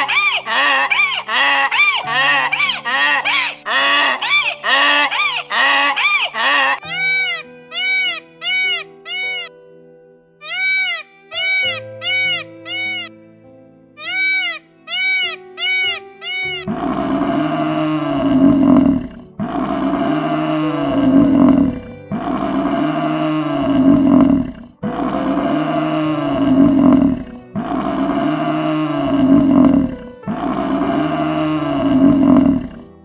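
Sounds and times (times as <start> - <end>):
peacock calling: 0.0 - 9.5, 10.4 - 13.1, 14.0 - 16.7
water buffalo bellowing: 0.0 - 9.5, 10.4 - 13.1, 14.0 - 32.8.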